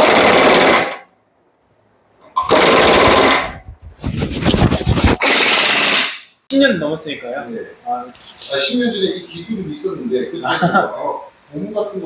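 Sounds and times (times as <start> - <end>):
air tool rattling: 2.5 - 6.4.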